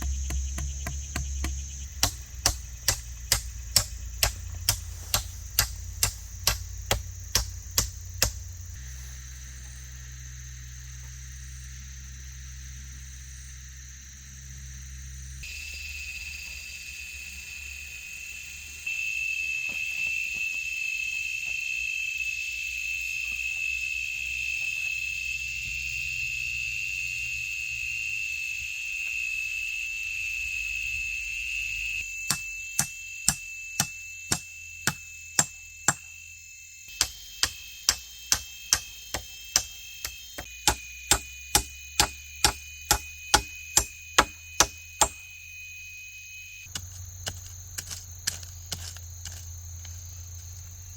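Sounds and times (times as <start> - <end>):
blade chopping bamboo: 0.0 - 8.5, 32.3 - 36.1, 36.9 - 45.2, 46.7 - 49.5
insects trilling: 0.0 - 50.9.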